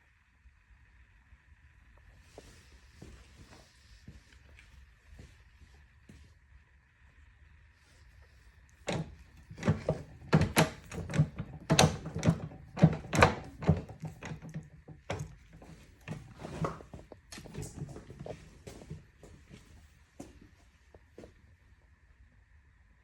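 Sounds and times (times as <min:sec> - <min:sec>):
hard knocks and clunks: 0:08.9 - 0:18.3.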